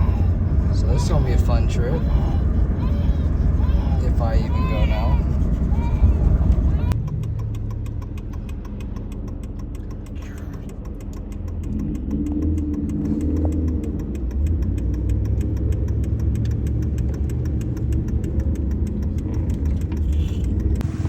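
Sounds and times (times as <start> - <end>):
fast even ticking: 0.0 - 20.8
car engine: 0.0 - 21.0
road rumble: 0.0 - 21.0.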